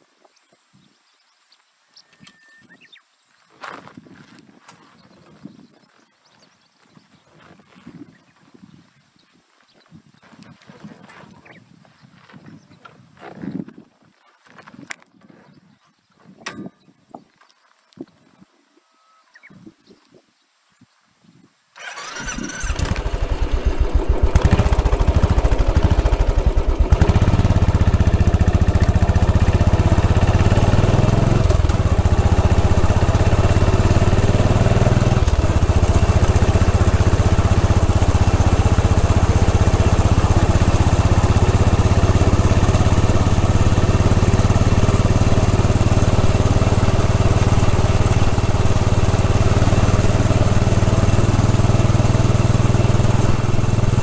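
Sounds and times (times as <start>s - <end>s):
motorcycle engine running: 21.8s - 54.0s.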